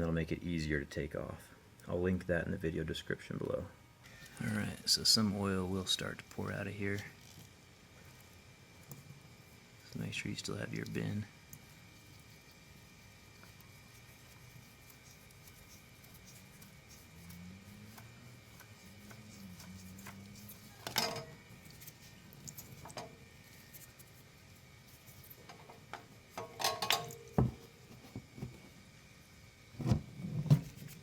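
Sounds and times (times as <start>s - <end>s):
faint steady hum: 0.0s - 31.0s
wrench clanking on metal: 26.4s - 27.3s.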